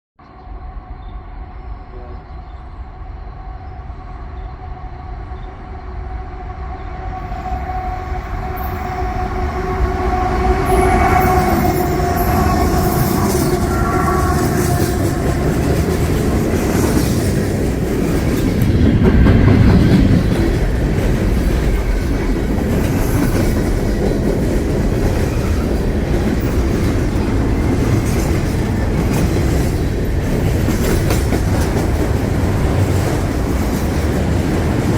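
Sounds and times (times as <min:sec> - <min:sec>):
train horn: 0:00.2 - 0:17.8
diesel locomotives passing: 0:00.2 - 0:34.9
freight cars clickety-clack: 0:07.6 - 0:34.9.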